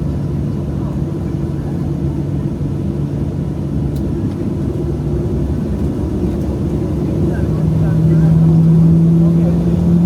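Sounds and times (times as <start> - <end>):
jet engines idling in cabin: 0.0 - 10.0.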